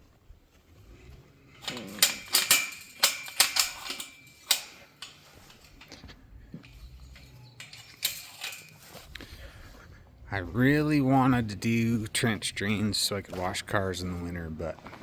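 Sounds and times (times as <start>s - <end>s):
sharp clicks and knocks: 1.6s - 9.3s.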